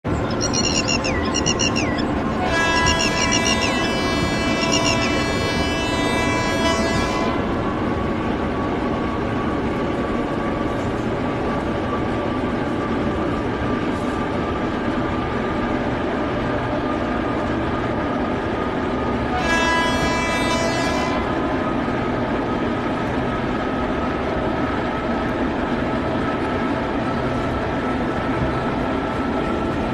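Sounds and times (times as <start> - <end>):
locomotive rumble with whine: 0.0 - 29.9
locomotive horn: 0.3 - 7.6, 19.3 - 21.7.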